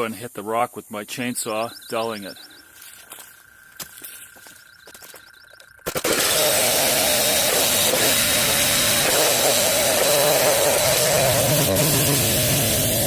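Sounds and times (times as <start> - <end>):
chainsaw cutting log: 5.9 - 13.0.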